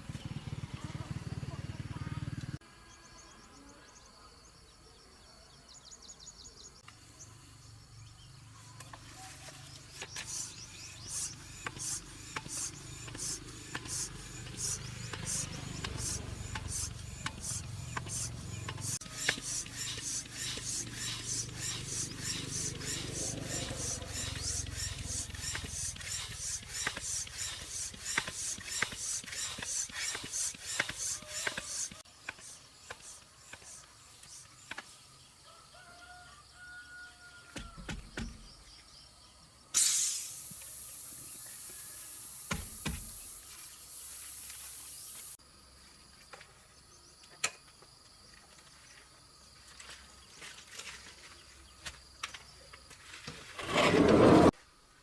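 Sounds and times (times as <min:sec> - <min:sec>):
rhythmic hand rubbing: 0:10.2 - 0:34.4.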